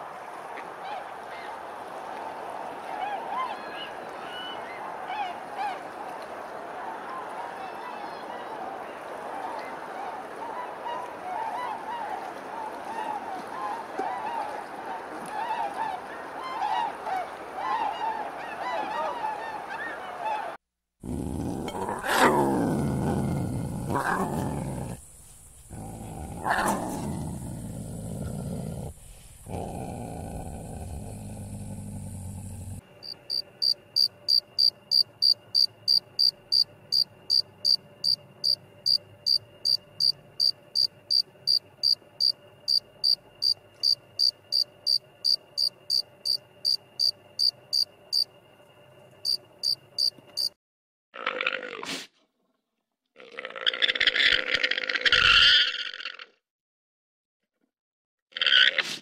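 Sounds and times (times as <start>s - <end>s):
cheetahs purring: 21.0s - 32.8s
insect chirping: 23.3s - 50.6s.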